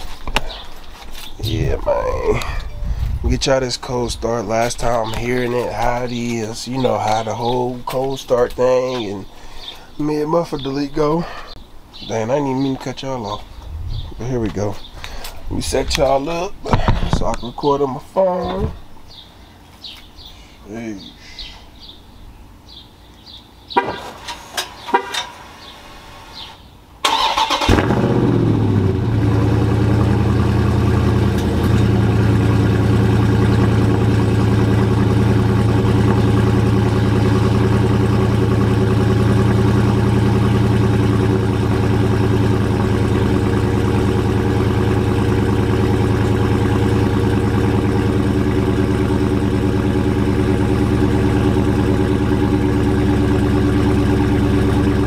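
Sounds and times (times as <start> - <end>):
car engine starting and idling: 1.4 - 7.5, 26.3 - 55.0.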